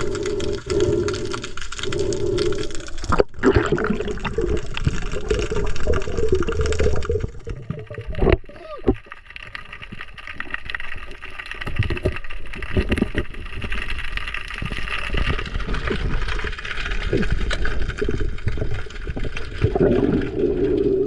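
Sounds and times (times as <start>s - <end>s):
water sloshing and gurgling: 0.0s - 21.0s.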